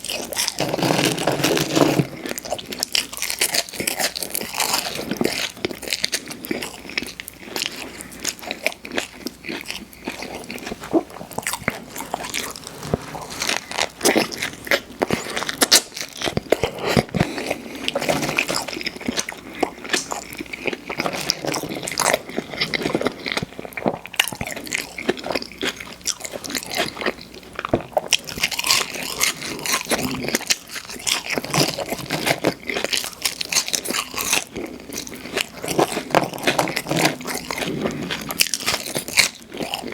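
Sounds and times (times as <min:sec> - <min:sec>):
crunchy bites: 0:00.0 - 0:39.9
wet chewing: 0:00.0 - 0:39.9.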